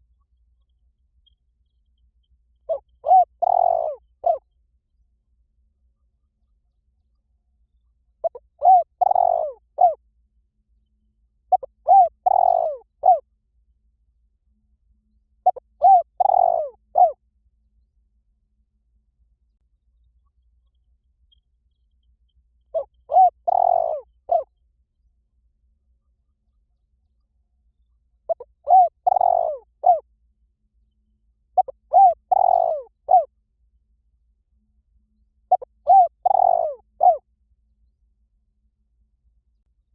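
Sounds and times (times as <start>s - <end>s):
spotted dove cooing: 2.7s - 4.4s, 8.2s - 10.0s, 11.5s - 13.2s, 15.4s - 17.2s, 22.7s - 24.5s, 28.3s - 30.0s, 31.6s - 33.3s, 35.5s - 37.2s.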